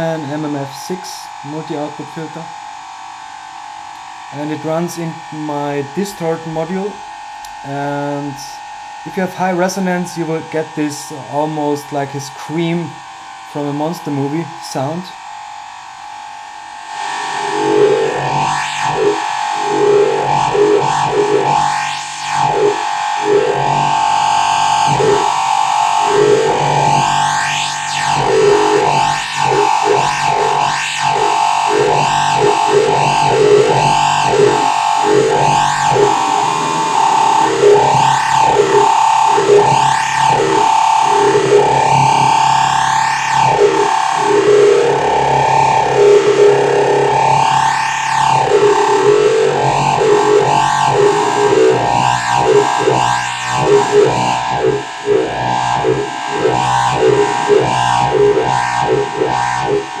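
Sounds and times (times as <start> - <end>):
distorted synthesizer sequence: 4.0 - 15.3, 16.0 - 60.0
steady high tone: 16.9 - 60.0.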